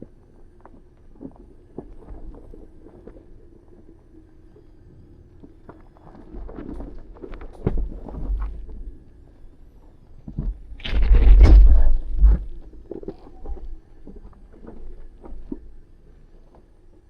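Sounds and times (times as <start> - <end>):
vehicle engine low rumble: 4.6 - 17.0
tyres crunching and knocking on rock: 10.8 - 12.6.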